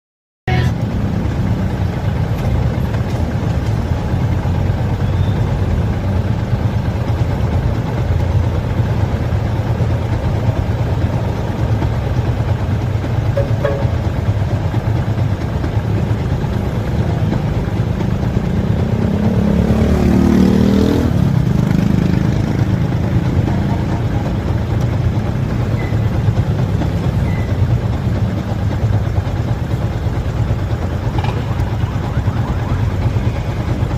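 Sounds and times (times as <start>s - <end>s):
motorcycle engine running: 0.5s - 33.9s.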